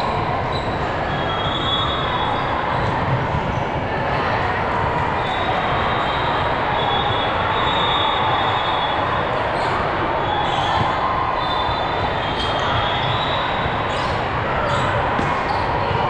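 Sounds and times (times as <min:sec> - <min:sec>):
shoe squeaks: 0:09.6 - 0:16.0.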